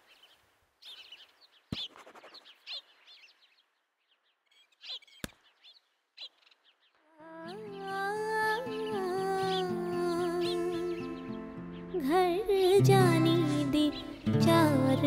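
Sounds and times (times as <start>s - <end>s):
small birds chirping: 0.0s - 15.0s
music: 7.5s - 15.0s.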